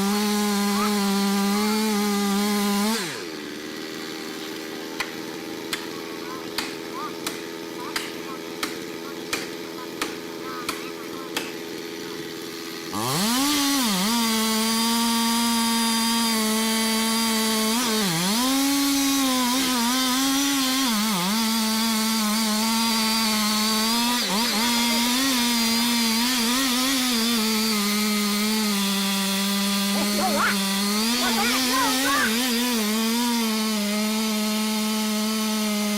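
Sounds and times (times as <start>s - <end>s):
chainsaw running at full speed: 0.0s - 35.9s.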